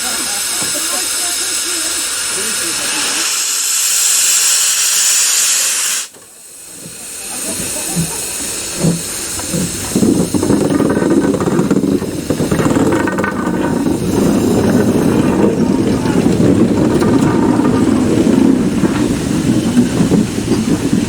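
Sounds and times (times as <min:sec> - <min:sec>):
steam locomotive hissing: 0:00.0 - 0:21.0
steady low rumble: 0:07.8 - 0:21.0
low thumps: 0:08.8 - 0:21.0.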